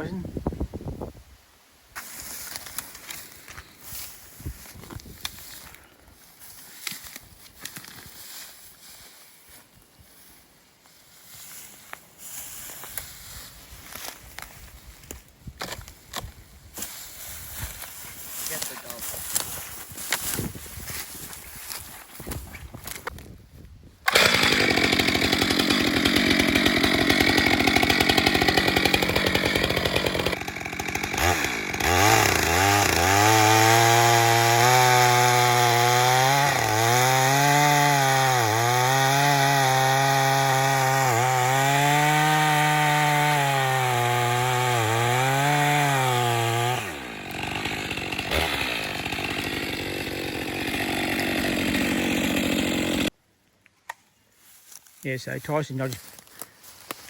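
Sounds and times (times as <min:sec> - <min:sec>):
chainsaw cutting wood: 0:12.3 - 0:23.2, 0:24.1 - 0:53.2.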